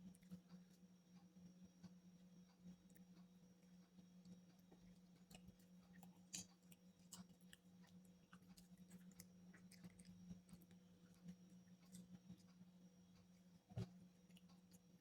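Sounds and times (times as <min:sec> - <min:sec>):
person chewing close-up: 0:02.8 - 0:12.6, 0:13.2 - 0:15.0.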